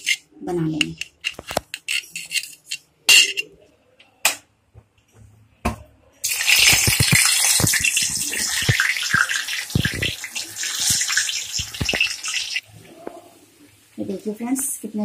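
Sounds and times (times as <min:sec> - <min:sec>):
food sizzling in hot oil: 0:06.2 - 0:15.0.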